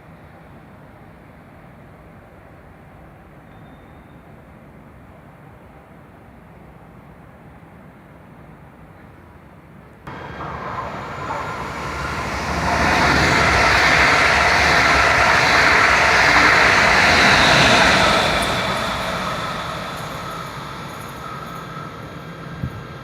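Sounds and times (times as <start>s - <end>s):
train running past: 10.1s - 23.0s.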